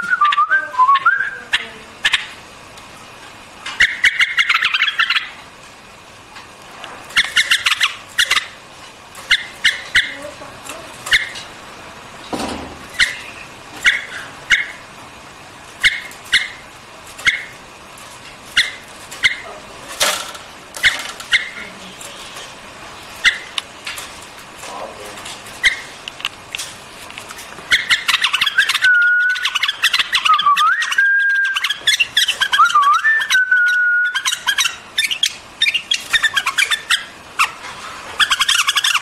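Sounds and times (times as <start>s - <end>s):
bird warbling song: 3.8s - 5.4s, 7.1s - 8.6s, 27.7s - 37.6s, 38.2s - 39.0s
bird calling in sharp notes: 27.7s - 37.6s.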